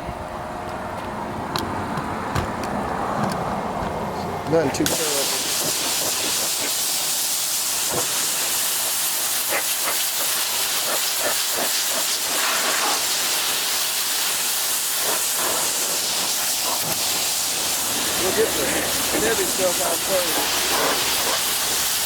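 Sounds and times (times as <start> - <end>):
pressure washer spraying: 4.8 - 22.0.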